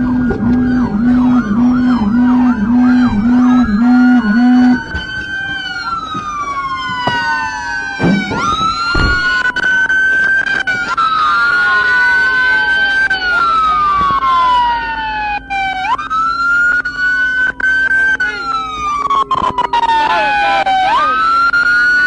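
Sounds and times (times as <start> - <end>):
police siren yelp: 0.0 - 22.0
slow wailing sirens: 0.0 - 22.0
deep pulsing tone: 9.0 - 9.5.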